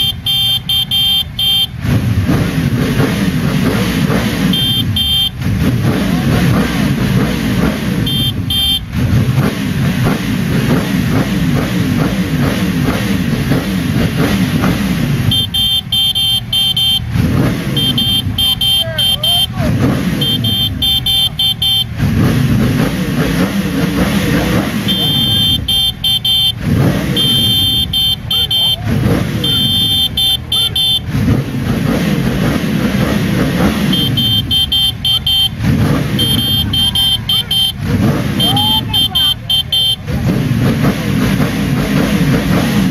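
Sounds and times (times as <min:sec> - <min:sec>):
high beeping tone: 0:00.0 - 0:01.8, 0:04.4 - 0:05.4, 0:08.0 - 0:08.9, 0:15.2 - 0:22.0, 0:23.8 - 0:31.2, 0:33.2 - 0:40.1
motorcycle engine revving: 0:00.0 - 0:42.9.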